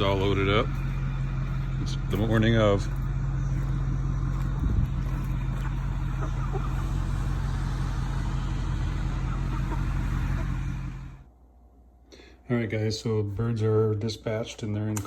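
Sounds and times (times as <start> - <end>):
road noise: 0.0 - 11.3
vehicle engine hum: 0.0 - 11.3.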